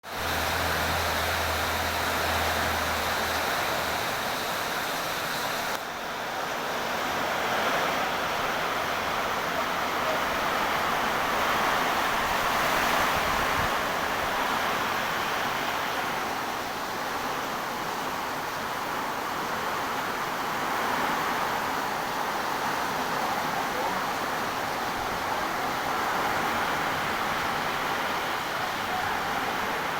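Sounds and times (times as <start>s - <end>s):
heavy rain pouring: 0.0s - 29.9s
strong wind: 7.2s - 16.4s.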